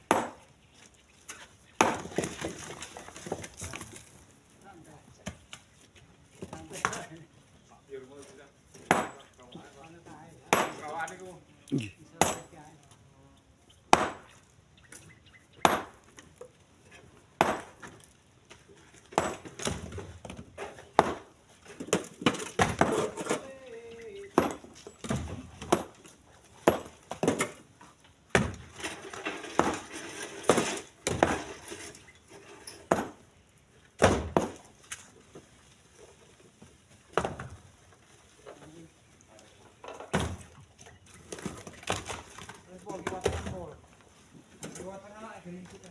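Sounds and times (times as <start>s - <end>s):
stones clacking into truck bed: 1.3s - 4.2s, 17.4s - 23.6s, 28.3s - 33.2s.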